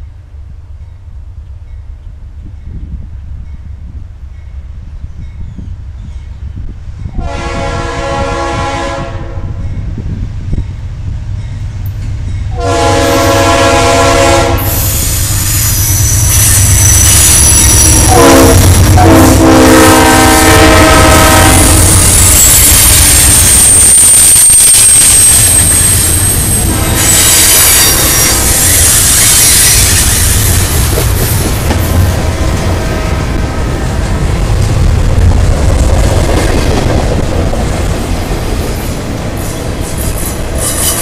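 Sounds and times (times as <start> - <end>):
locomotive air horn blasts: 7.2 - 9.6, 12.5 - 15.0, 17.0 - 22.2
high-pitched wheel squeal: 14.7 - 18.2, 21.8 - 30.8, 40.2 - 41.0.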